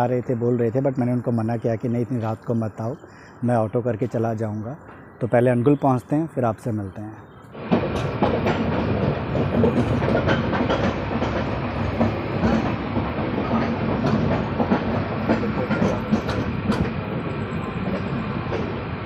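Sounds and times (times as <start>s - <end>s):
train running rumble: 7.6s - 19.0s
wheels clacking over rail joints: 7.6s - 19.0s.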